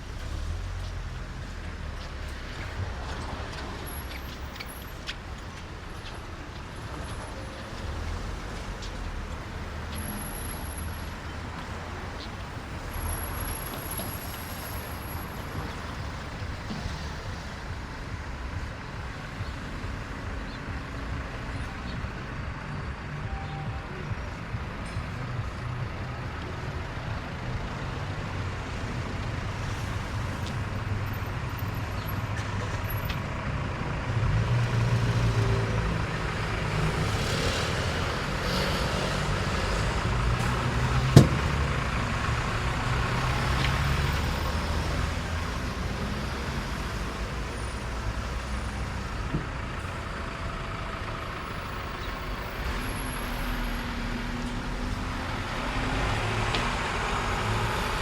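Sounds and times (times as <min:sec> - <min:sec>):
road traffic passing: 0:00.0 - 0:58.0
sharp knock: 0:41.2 - 0:41.7.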